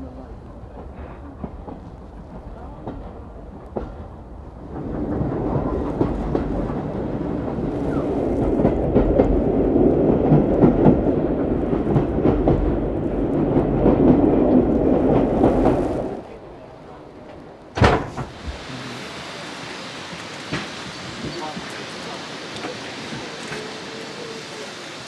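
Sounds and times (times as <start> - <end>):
train rumbling on track: 0.0 - 25.0
wheel and rail clicks: 19.4 - 25.0.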